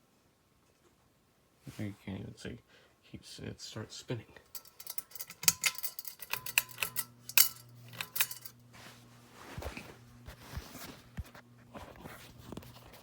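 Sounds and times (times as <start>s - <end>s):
ceiling fan motor hum: 1.8s - 13.0s
light metallic clinks and ticks: 4.5s - 8.6s.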